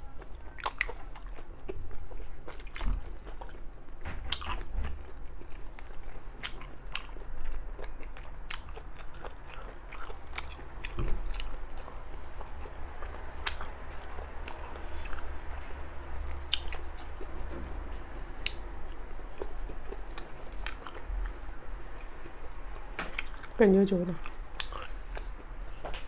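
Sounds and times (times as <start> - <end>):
chewing and biting: 0.0 - 17.5, 18.4 - 23.6, 24.2 - 26.0.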